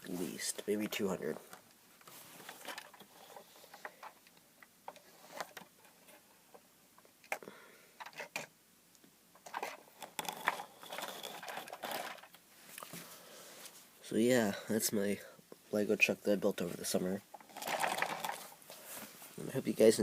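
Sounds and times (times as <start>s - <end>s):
plastic toy bricks clicking and rattling: 9.4s - 12.4s, 17.3s - 18.6s.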